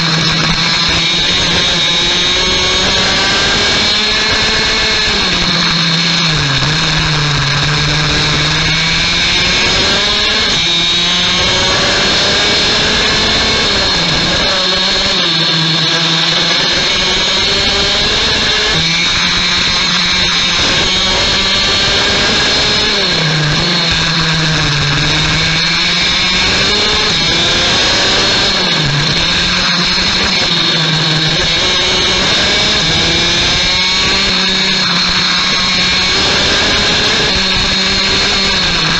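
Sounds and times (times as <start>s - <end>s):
constant high whine: 0.0s - 38.9s
kart two-stroke engine racing: 0.0s - 38.9s.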